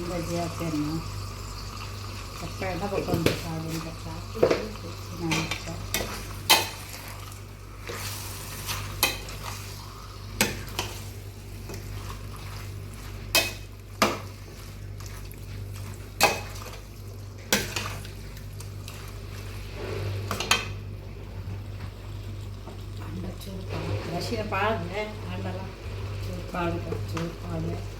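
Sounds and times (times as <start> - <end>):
spices sizzling in oil: 0.0 - 21.0, 21.6 - 27.9
steady low hum: 0.0 - 27.9
spatula striking pan: 13.3 - 14.3.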